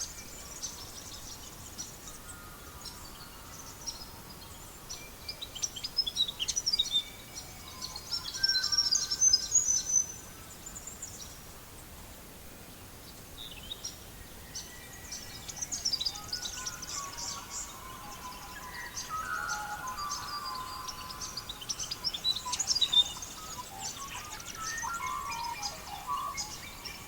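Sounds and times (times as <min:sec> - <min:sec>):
faint steady hiss: 0:00.0 - 0:27.0
small birds chirping: 0:13.1 - 0:27.0.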